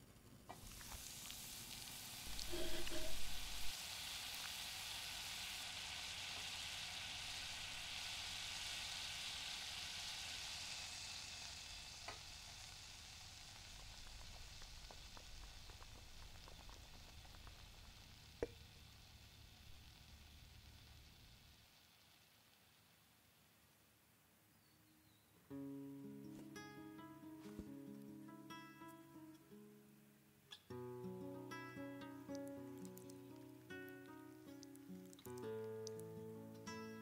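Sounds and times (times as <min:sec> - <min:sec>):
omelette sizzling in oil: 0:00.1 - 0:24.0, 0:31.5 - 0:37.0.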